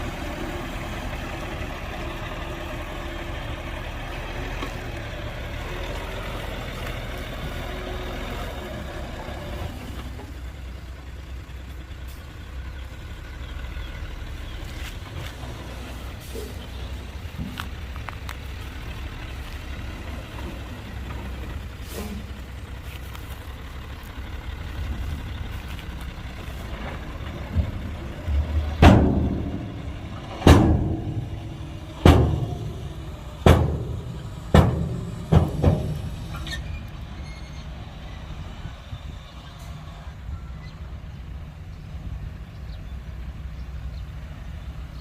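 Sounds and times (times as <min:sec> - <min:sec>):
diesel machinery engine running: 0:00.0 - 0:45.0
loud ringing bangs: 0:28.7 - 0:36.3.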